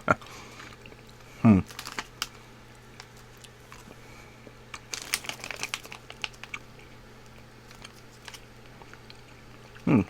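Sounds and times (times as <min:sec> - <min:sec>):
plastic snack wrapper crinkling: 0:01.6 - 0:04.0, 0:04.7 - 0:10.0.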